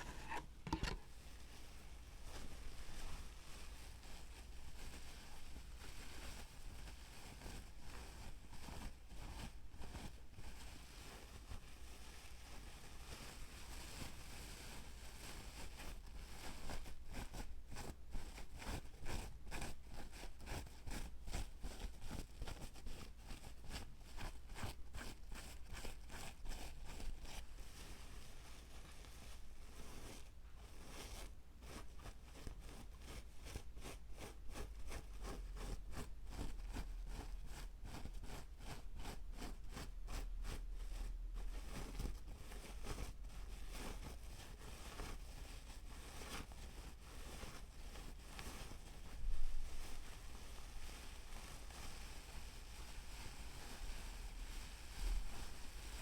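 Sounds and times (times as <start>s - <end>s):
fast scratching or tapping strokes: 0.0s - 1.1s
scratching and rustling on object: 0.0s - 56.0s.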